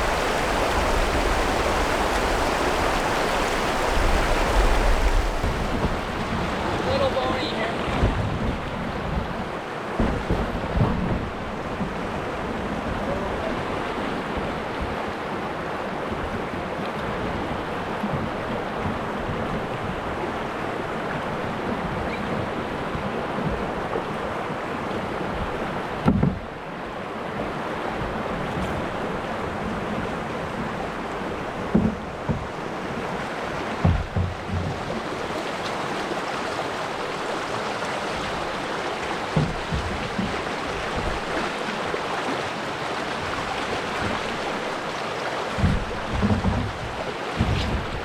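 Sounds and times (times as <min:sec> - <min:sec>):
wind bumps on microphone: 0:00.0 - 0:13.5, 0:45.5 - 0:48.0
river water rushing: 0:00.0 - 0:48.0.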